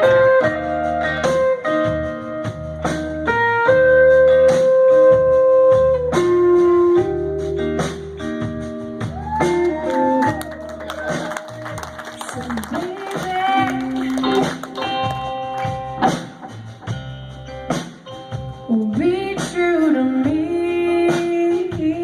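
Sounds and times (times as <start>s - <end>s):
electric guitar lead notes: 0.0s - 21.0s
steady drum beat: 7.4s - 22.0s.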